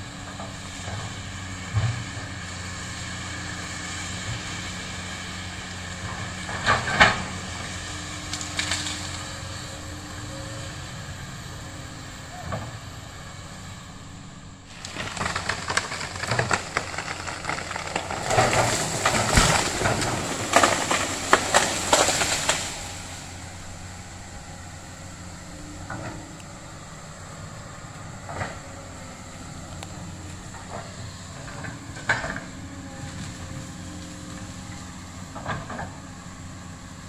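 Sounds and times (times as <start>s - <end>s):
excavator diesel engine running: 0.0s - 37.0s
dense crackling and snapping: 1.7s - 10.6s, 14.7s - 23.7s.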